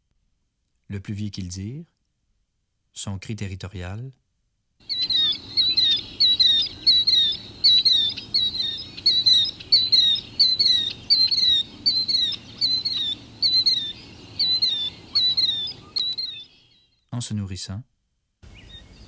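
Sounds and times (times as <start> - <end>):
shrill two-note bird calls: 4.9 - 16.8.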